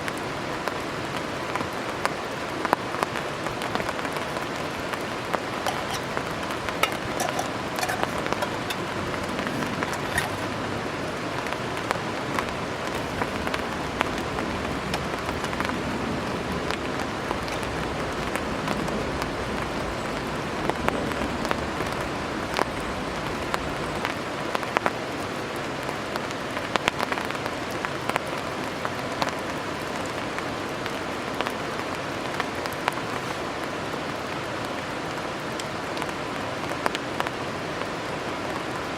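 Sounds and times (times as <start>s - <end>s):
raindrops tapping on poncho: 0.0s - 38.9s
steady rain: 0.0s - 38.9s.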